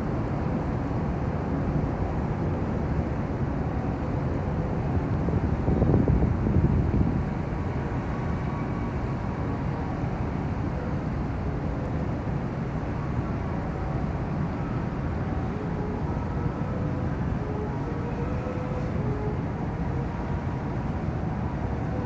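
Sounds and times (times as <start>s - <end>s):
ship engines rumbling: 7.8s - 20.5s.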